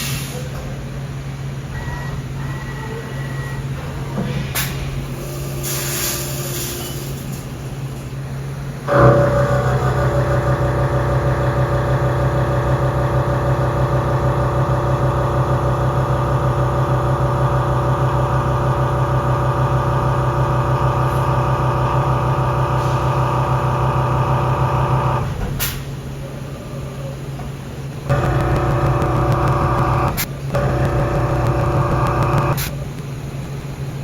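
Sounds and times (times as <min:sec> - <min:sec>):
milling machine cutting hum: 0:08.9 - 0:25.3, 0:27.9 - 0:34.0.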